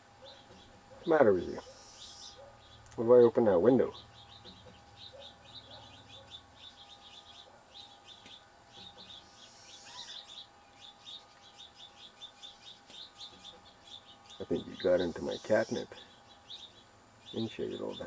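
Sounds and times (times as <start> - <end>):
small bird chirping: 0.2 - 18.0.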